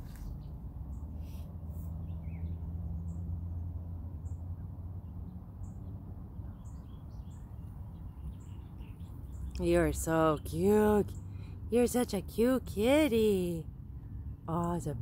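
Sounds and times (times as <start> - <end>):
small bird chirping: 0.0 - 3.3, 5.6 - 11.5.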